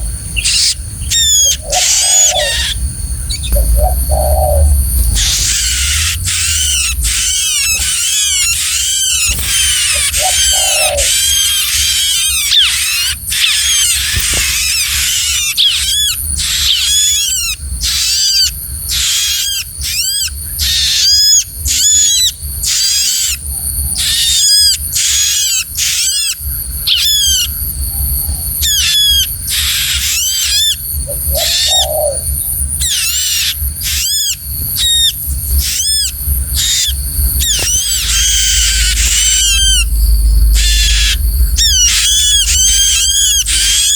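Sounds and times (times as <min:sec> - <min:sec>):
songbird chirping rapidly: 0:00.0 - 0:21.5, 0:28.6 - 0:43.9
low rumble: 0:02.4 - 0:11.4, 0:35.5 - 0:43.9.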